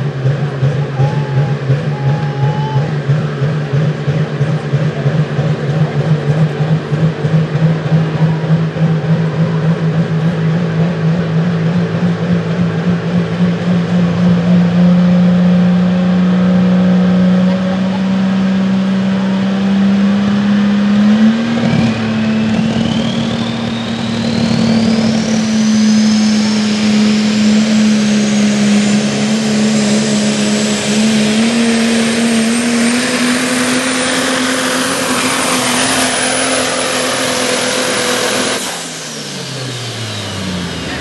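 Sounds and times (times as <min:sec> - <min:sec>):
diesel engine under load: 0:00.0 - 0:41.0
turbo whistle rising: 0:00.6 - 0:03.9, 0:21.0 - 0:41.0.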